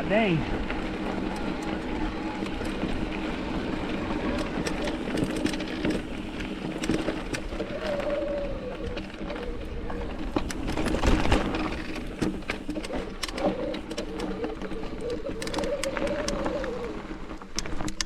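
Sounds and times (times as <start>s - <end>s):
bike tyre hum on rocks: 0.0s - 18.0s.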